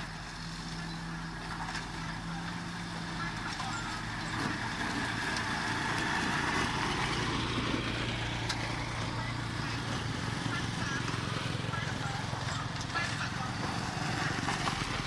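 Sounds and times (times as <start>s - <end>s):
heavy diesel machinery running: 0.0s - 15.0s.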